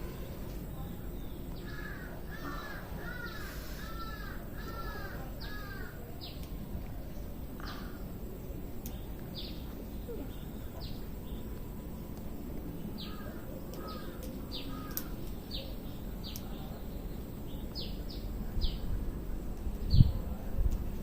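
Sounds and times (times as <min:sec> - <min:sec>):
birds chirping: 0:00.0 - 0:19.0
background hiss: 0:00.0 - 0:21.0
lower arched bird calls: 0:01.6 - 0:06.4, 0:07.6 - 0:08.1, 0:12.8 - 0:16.8.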